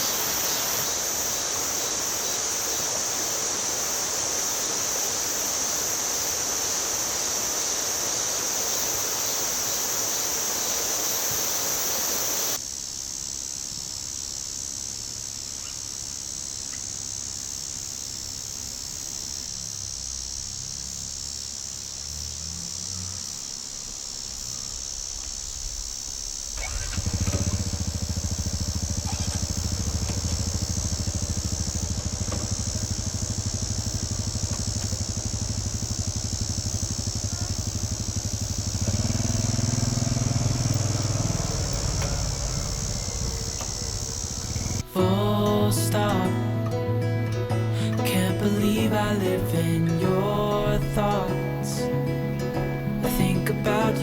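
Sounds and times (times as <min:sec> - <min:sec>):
rushing hiss with high buzz: 0:00.0 - 0:54.0
motorcycle engine starting and idling: 0:14.8 - 0:54.0.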